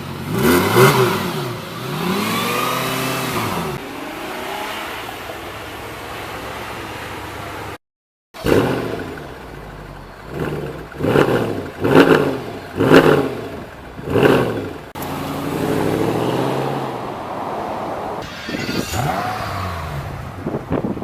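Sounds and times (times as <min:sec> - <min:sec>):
car engine revving: 0:00.0 - 0:07.4, 0:08.4 - 0:21.0
engine running steadily: 0:08.4 - 0:16.4.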